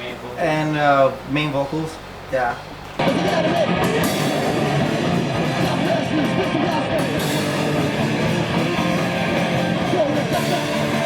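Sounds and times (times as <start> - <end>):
rock music: 3.0 - 11.0.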